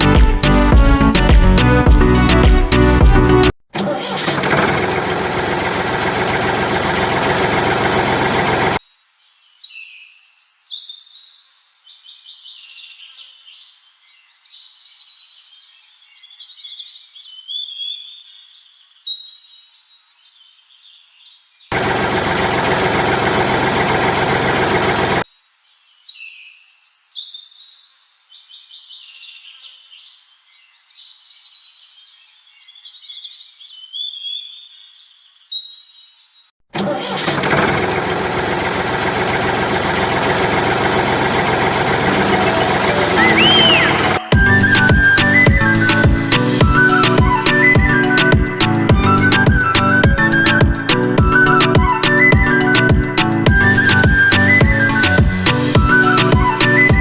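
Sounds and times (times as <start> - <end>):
loud engine noise: 3.8 - 8.8, 21.7 - 25.2, 36.8 - 46.4
birds chirping and singing: 42.1 - 57.0.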